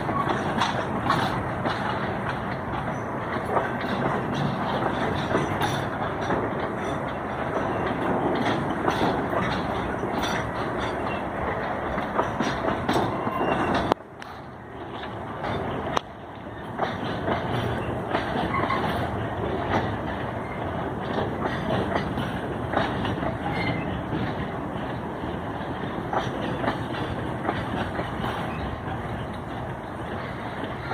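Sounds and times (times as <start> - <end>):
clickety-clack over rail joints: 0.0 - 30.9
train wheels rumbling: 0.0 - 30.9.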